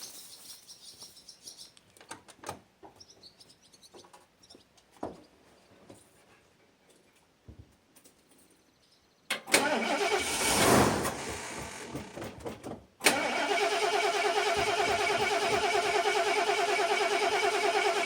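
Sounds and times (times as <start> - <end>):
engine cranking by starter: 9.3 - 18.0.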